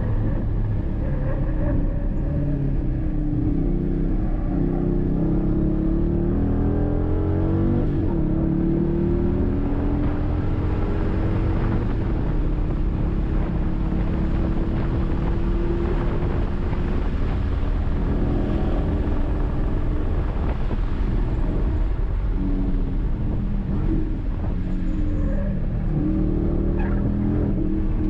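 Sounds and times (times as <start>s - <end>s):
car engine revving: 0.0s - 28.0s
road and wind noise: 0.0s - 28.0s.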